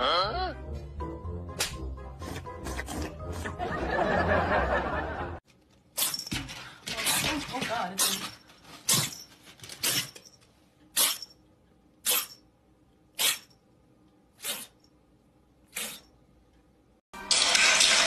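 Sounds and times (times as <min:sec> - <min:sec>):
animal breathy bursts: 0:15.7 - 0:16.0.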